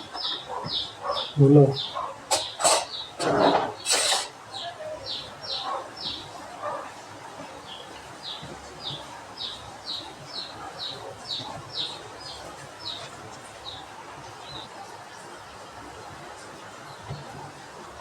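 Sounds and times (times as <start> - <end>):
small bird chirping: 0.0 - 6.3.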